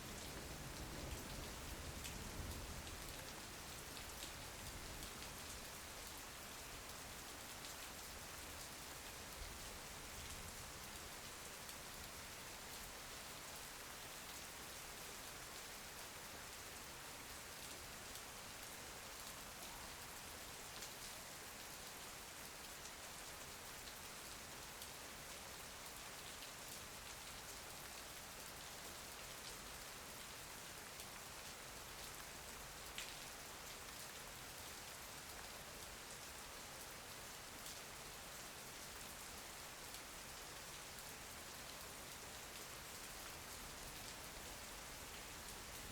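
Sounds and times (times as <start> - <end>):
soft rain hiss: 0.0 - 45.9.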